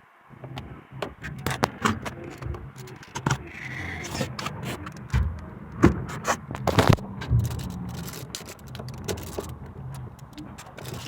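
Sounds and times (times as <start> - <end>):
clicks and knocks of machine parts: 0.4 - 11.0
short scrape: 6.0 - 8.6.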